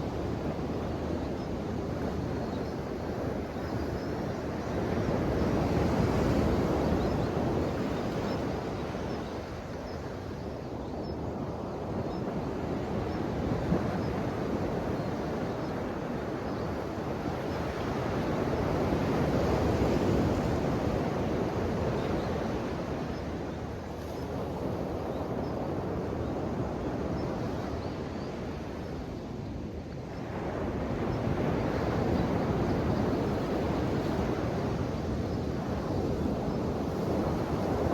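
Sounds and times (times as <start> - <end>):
ocean waves washing onto shore: 11.6 - 37.9.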